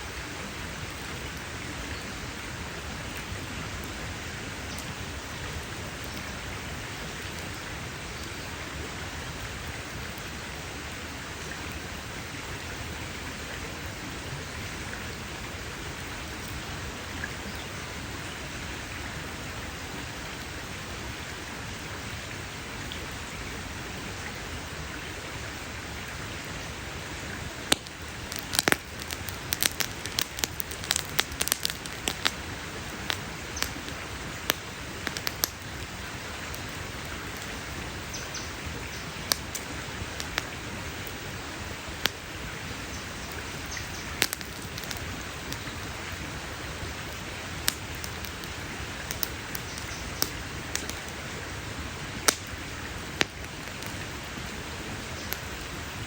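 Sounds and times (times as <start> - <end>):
campfire hissing: 0.0 - 56.0
burning wood crackling and popping: 0.2 - 10.4, 26.4 - 56.0.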